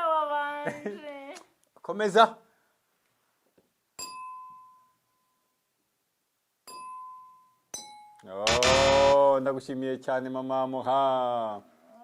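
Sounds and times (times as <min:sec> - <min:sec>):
loud pitched sound with low hum: 0:08.5 - 0:09.2.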